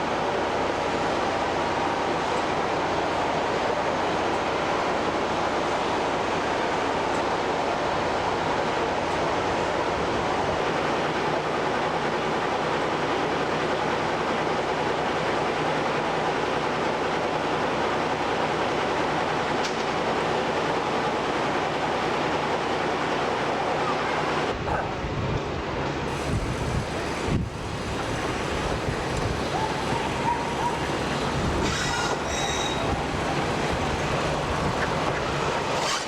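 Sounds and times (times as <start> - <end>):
train rushing noise: 0.0 - 36.0
faint low engine drone: 17.8 - 35.9
wind on microphone: 26.1 - 35.8.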